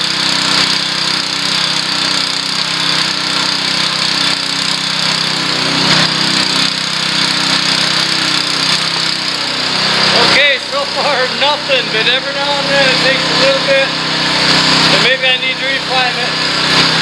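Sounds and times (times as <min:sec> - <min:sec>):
water pump engine running: 0:00.0 - 0:17.0.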